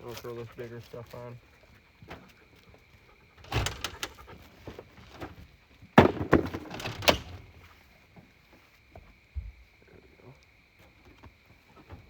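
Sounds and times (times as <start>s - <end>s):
firewood knocking and clattering: 3.4s - 7.6s.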